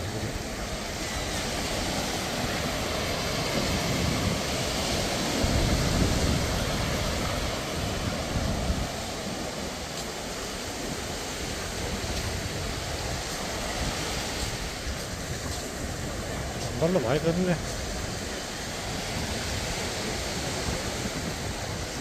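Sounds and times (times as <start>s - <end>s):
surf washing onto beach: 0.0s - 22.0s.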